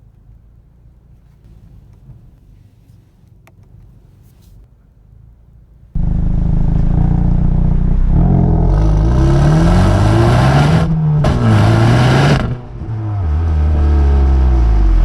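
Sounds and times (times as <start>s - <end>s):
car engine accelerating: 6.0s - 15.0s.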